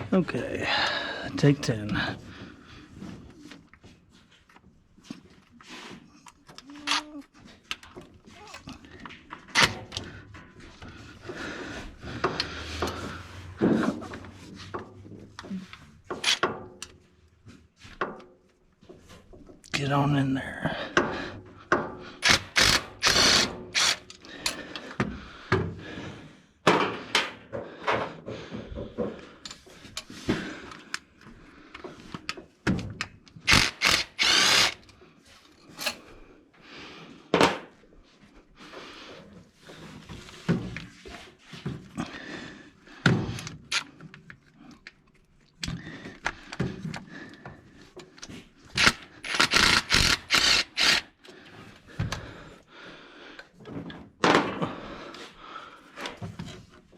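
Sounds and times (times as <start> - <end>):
rapid ratchet clicking: 22.2 - 24.1, 33.5 - 34.8, 48.8 - 51.1.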